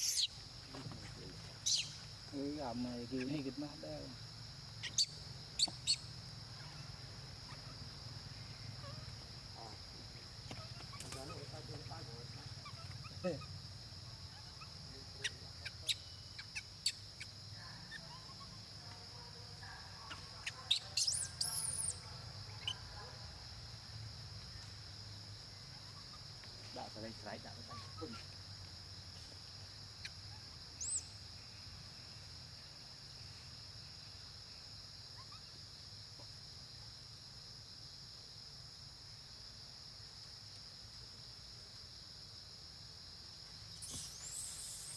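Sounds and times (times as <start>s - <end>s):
crickets droning: 0.0s - 44.9s
high-pitched insect drone: 43.7s - 44.9s.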